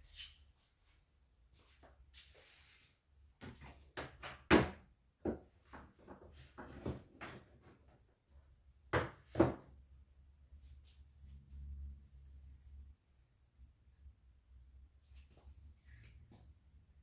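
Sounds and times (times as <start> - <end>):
boards knocking on workbench: 9.0 - 9.7.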